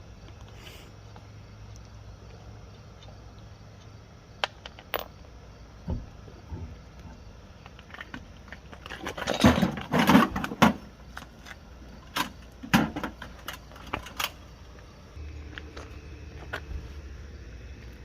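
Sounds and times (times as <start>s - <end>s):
metal tools clinking and rattling: 7.8s - 10.5s.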